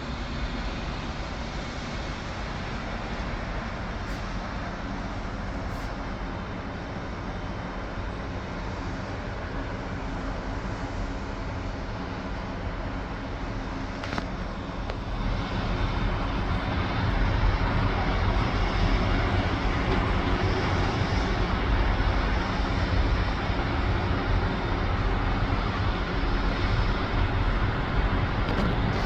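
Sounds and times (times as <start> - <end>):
wind rumble on microphone: 11.2 - 29.0.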